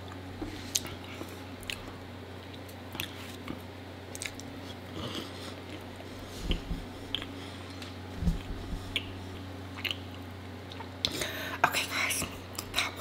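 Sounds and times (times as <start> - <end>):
sticky wet chewing: 0.6 - 7.9.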